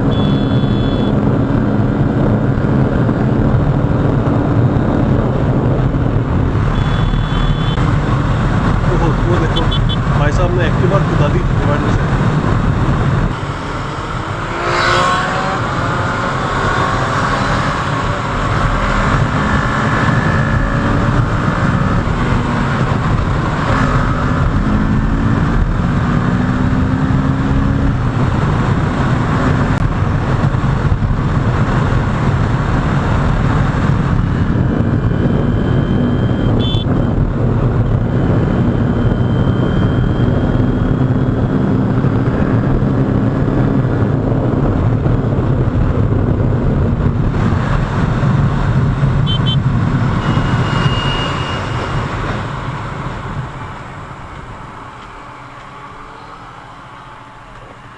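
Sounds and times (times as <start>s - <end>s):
wind rush over microphone: 0.0s - 57.9s
vehicles swishing past: 6.9s - 25.4s, 47.4s - 57.9s.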